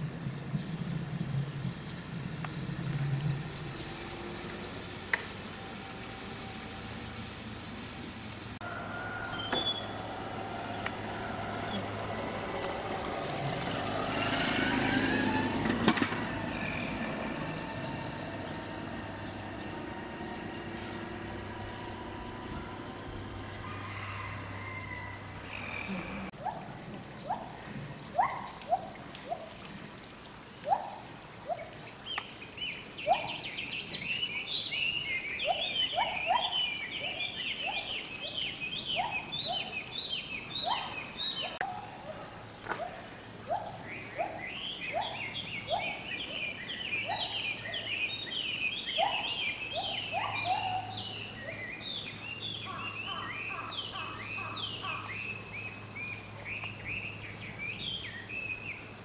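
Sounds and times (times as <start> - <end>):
birds chattering: 32.1 - 41.8, 43.6 - 58.3.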